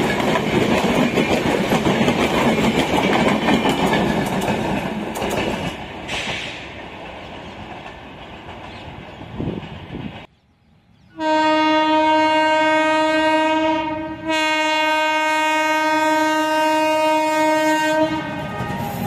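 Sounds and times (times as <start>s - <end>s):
train clattering over rail joints: 0.0s - 10.3s.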